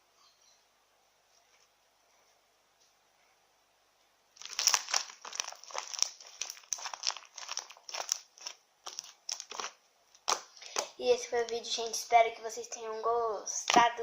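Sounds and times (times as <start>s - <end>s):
slime crackling and popping: 4.4s - 11.6s.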